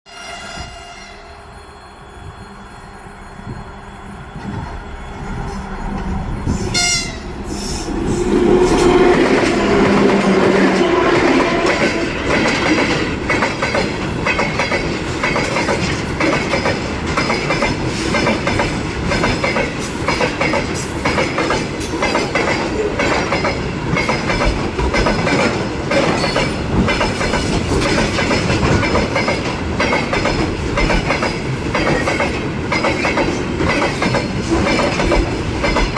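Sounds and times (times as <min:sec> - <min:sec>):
two-tone train horn: 0:00.1 - 0:01.3, 0:06.7 - 0:12.6
diesel locomotive engine: 0:00.2 - 0:35.9
wheels clacking on rail joints: 0:08.7 - 0:35.9.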